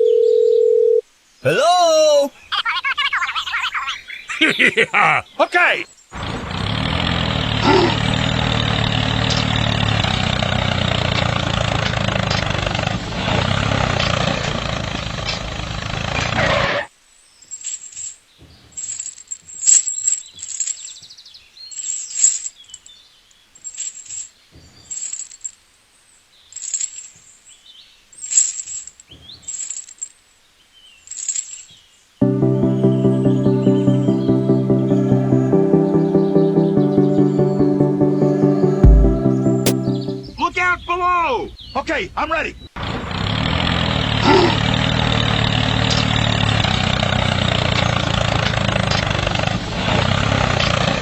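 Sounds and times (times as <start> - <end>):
birds chirping: 1.3 - 17.6, 18.2 - 25.2, 29.0 - 43.0.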